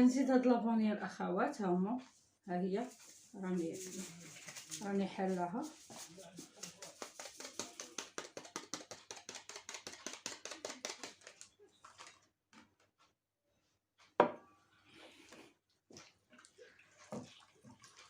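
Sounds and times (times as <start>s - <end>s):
utensil beating dough in bowl: 2.8s - 12.2s.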